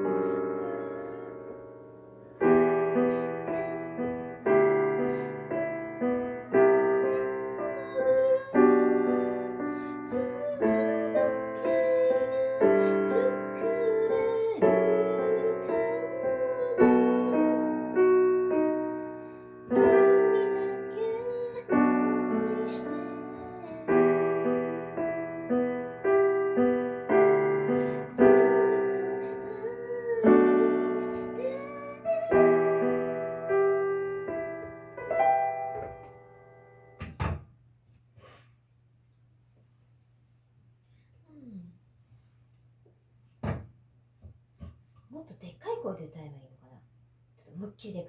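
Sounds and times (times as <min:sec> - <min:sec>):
soft voice singing: 0:00.0 - 0:01.7, 0:02.9 - 0:05.4, 0:06.5 - 0:18.6, 0:19.7 - 0:25.9, 0:27.7 - 0:34.3
gentle piano ballad chords: 0:00.0 - 0:37.3.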